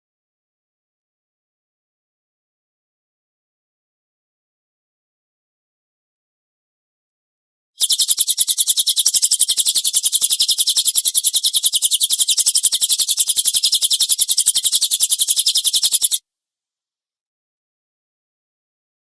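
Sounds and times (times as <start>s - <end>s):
songbird harsh rapid trill: 7.8s - 16.2s.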